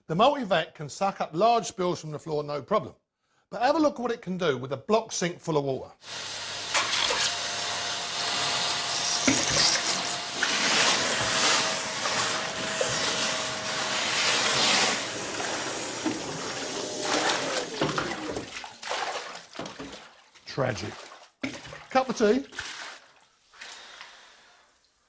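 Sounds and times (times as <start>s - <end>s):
vacuum motor whine: 6.0s - 18.4s
vacuum sucking water: 6.0s - 19.6s.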